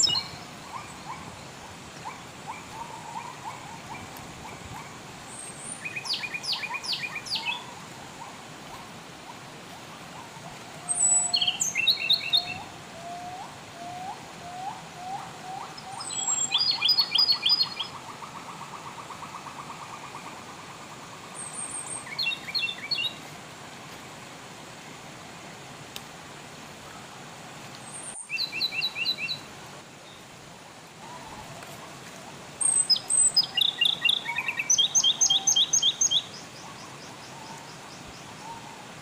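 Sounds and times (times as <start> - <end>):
background hiss: 0.0 - 39.0
songbirds chirping: 0.0 - 39.0
bird call trilling: 10.9 - 17.9, 32.6 - 36.3.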